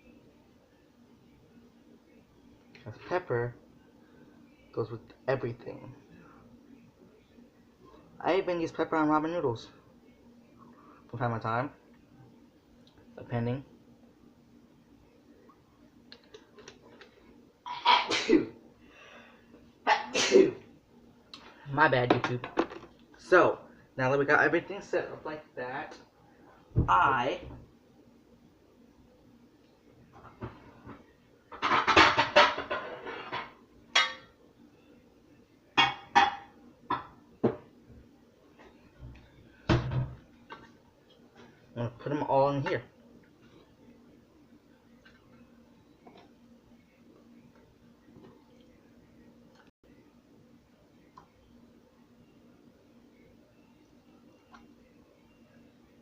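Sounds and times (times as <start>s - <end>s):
man sneezing: 17.8s - 18.5s, 19.9s - 20.6s
dishes and pans clattering: 31.5s - 34.3s, 35.8s - 37.6s.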